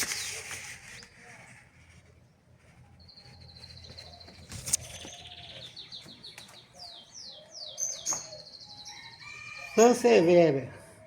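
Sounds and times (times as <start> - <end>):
songbird trilling: 3.1 - 9.8.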